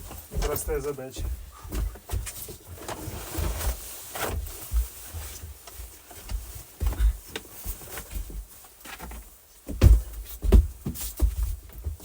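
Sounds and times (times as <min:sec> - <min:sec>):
dull knocks and thumps: 0:00.0 - 0:05.4, 0:09.0 - 0:12.0.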